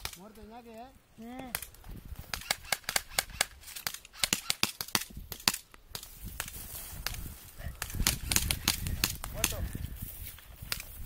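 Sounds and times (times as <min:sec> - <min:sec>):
airsoft guns firing: 0:02.3 - 0:06.5, 0:07.8 - 0:09.6.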